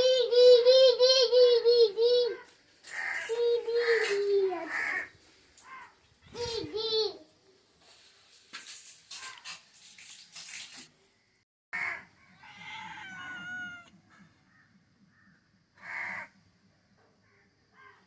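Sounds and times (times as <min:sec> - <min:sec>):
cat meowing: 0:12.4 - 0:14.0.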